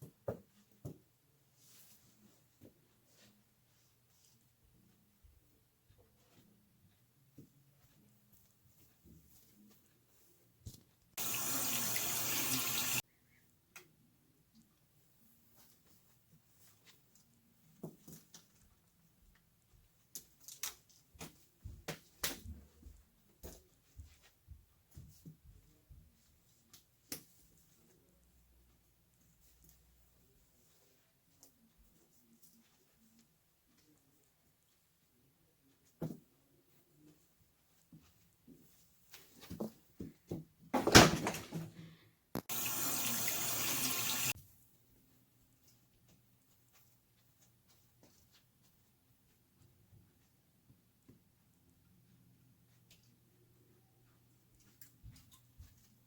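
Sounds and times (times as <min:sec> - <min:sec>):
running water: 0:11.2 - 0:13.0, 0:42.4 - 0:44.4.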